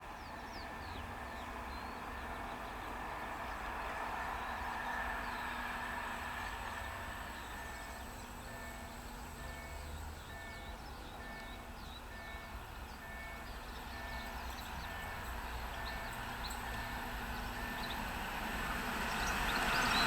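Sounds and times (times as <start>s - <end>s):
distant vehicle noise: 0.0s - 20.0s.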